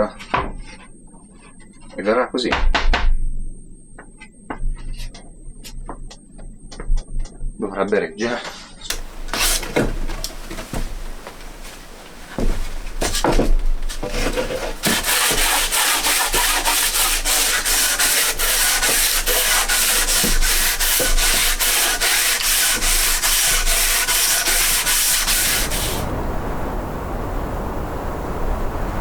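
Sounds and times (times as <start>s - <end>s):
wood being sanded: 8.9s - 26.1s.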